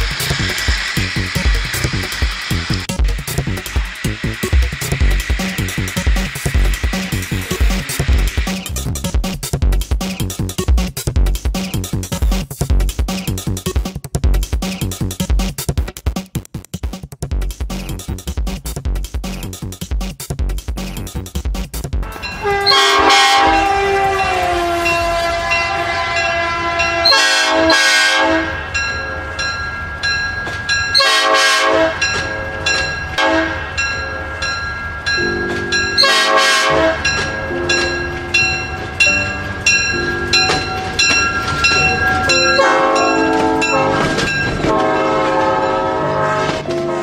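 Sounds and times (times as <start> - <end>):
synthesized horn blasts: 22.0 - 28.7, 31.0 - 32.2, 33.2 - 33.8, 36.0 - 47.0
repeating beeping tones: 37.4 - 44.5.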